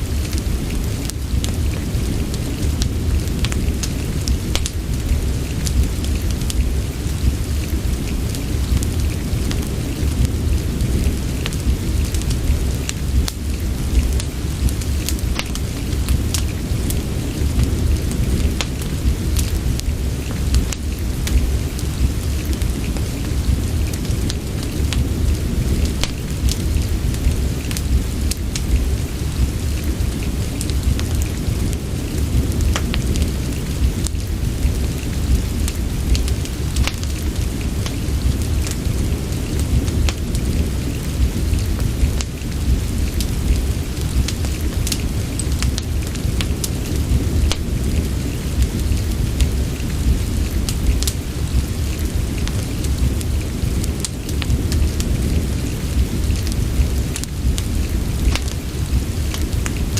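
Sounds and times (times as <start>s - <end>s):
deep low rumble: 0.0s - 59.9s
fireplace crackling: 0.0s - 59.9s
steady rain: 0.0s - 59.9s.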